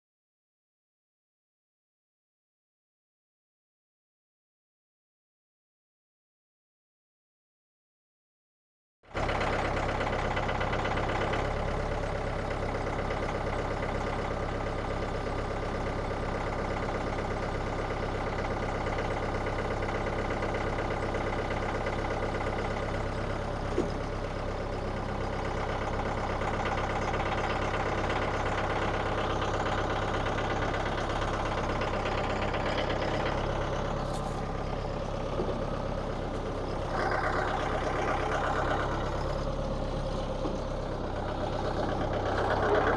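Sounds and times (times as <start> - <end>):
sawmill petrol engine running: 9.1 - 42.9.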